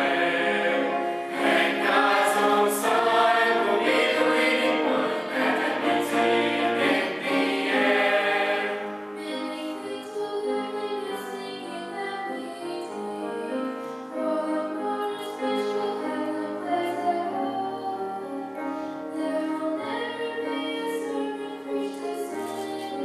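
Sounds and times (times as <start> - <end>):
youth choir singing: 0.0 - 13.1.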